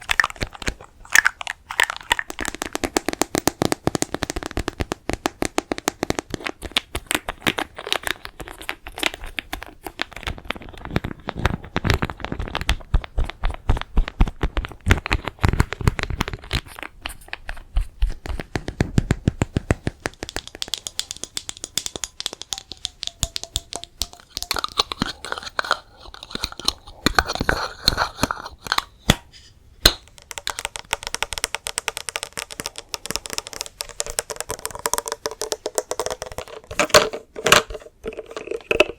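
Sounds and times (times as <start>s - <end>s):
small sharp taps and clicks: 17.4s - 25.1s, 29.9s - 36.9s.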